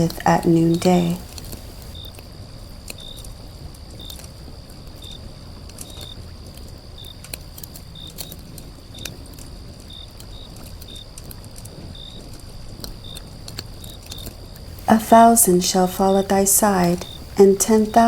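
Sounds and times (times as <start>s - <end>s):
insect chirps: 0.0s - 18.0s
faint clicks: 5.7s - 15.0s.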